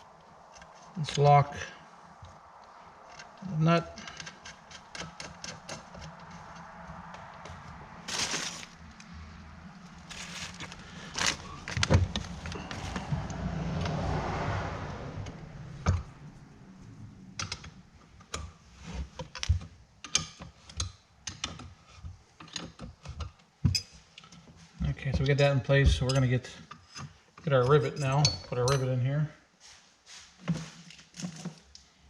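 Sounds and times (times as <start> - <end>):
small metal hardware clicking and rattling: 2.7 - 6.7, 26.0 - 29.0.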